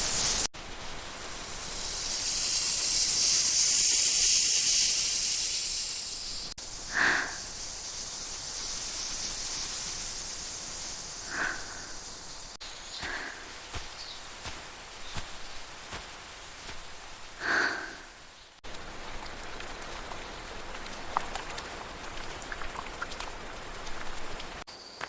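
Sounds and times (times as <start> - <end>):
ambient hiss: 0.0 - 24.6
small ticks and clicks: 18.6 - 25.0.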